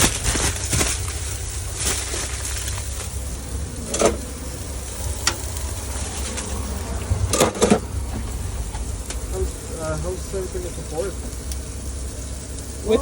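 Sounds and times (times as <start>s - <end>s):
food sizzling on a griddle: 0.0s - 13.0s
steady low hum: 0.0s - 13.0s.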